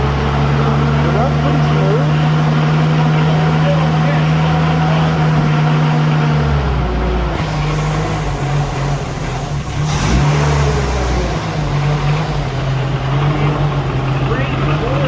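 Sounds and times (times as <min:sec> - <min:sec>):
pickup truck engine running: 0:00.0 - 0:15.0.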